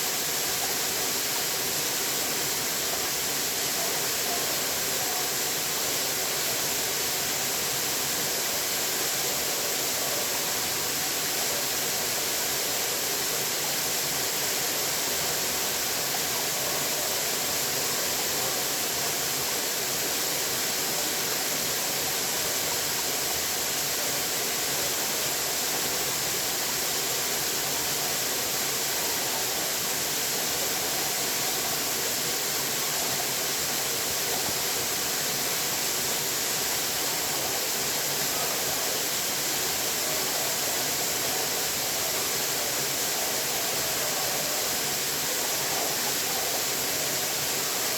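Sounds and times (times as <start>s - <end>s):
water rushing: 0.0s - 47.9s.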